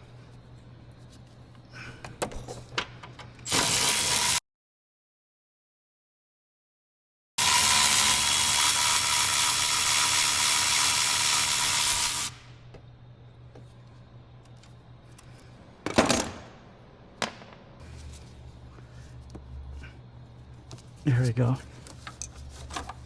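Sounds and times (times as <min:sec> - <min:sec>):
power tool whining: 0:03.5 - 0:04.4, 0:07.4 - 0:12.5.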